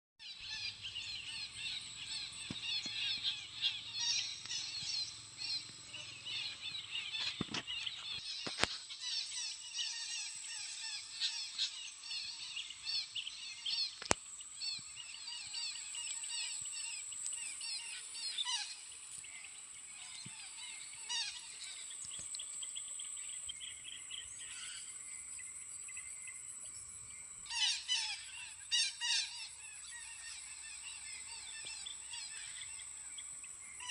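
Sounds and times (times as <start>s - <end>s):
flock of parrots squawking: 27.5s - 30.3s.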